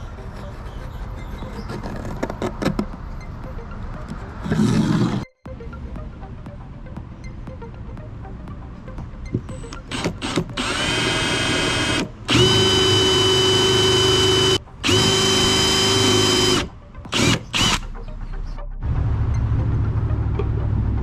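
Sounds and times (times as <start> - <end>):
power drill motor: 9.9 - 17.9.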